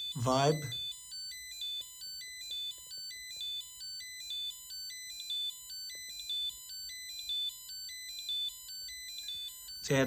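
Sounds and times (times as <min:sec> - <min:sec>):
spot welder buzzer beeping: 0:00.0 - 0:10.0.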